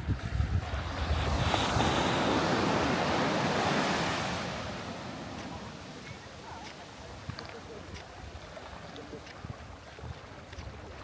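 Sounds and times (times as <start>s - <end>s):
wind buffeting microphone: 0.0s - 11.0s
sea wave breaking on beach: 0.6s - 6.0s.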